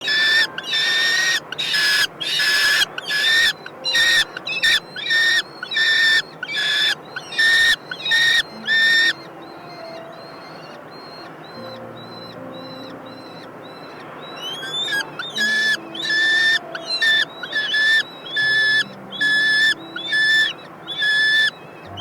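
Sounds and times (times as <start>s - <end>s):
kestrels harsh calls: 0.0s - 22.0s
thin high bird calls: 0.0s - 22.0s.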